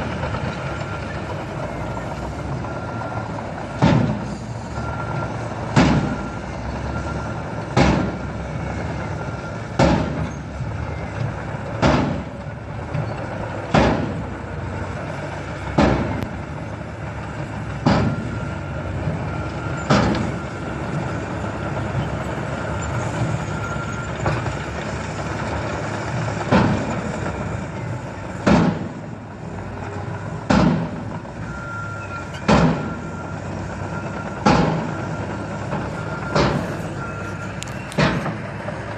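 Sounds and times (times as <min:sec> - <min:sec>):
truck engine running: 0:00.0 - 0:38.9
loud banging: 0:03.8 - 0:04.3.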